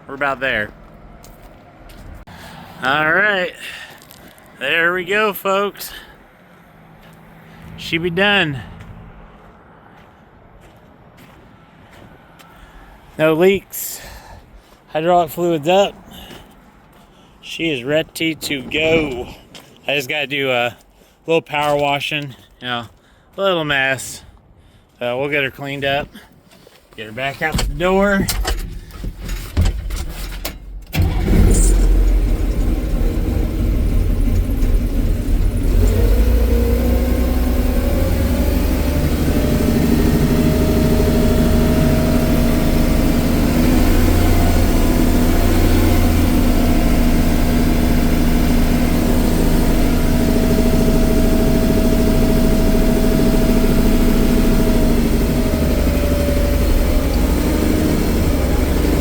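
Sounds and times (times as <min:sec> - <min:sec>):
forklift engine running: 0:30.9 - 0:59.0.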